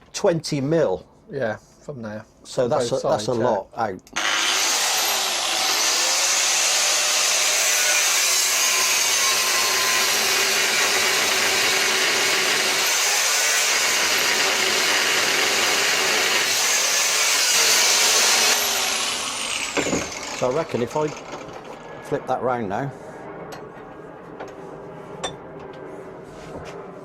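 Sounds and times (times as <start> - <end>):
angle grinder cutting steel: 4.2 - 21.9.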